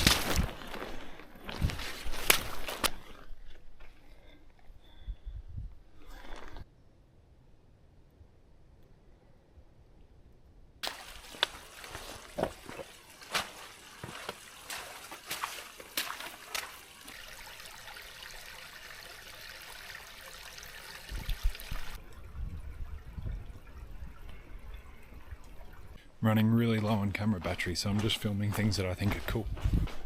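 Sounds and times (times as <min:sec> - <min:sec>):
water drips: 0:10.8 - 0:26.0
water trickling and splashing: 0:10.8 - 0:26.0.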